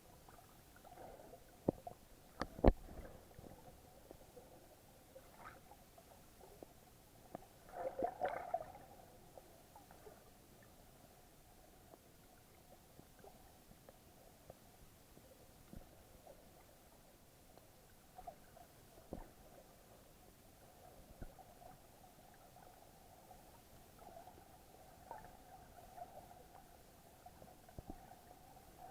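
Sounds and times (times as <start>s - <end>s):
faint underwater clicks: 0.1s - 10.8s, 11.4s - 28.9s
gurgling bubbles: 7.7s - 8.9s.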